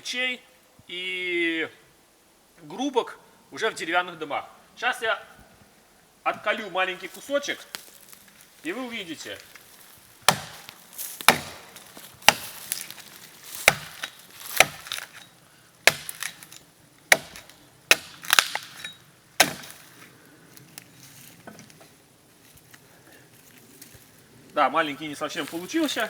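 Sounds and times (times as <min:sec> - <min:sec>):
chopping strikes into wood: 0:10.3 - 0:13.0, 0:13.6 - 0:15.2, 0:15.8 - 0:19.9.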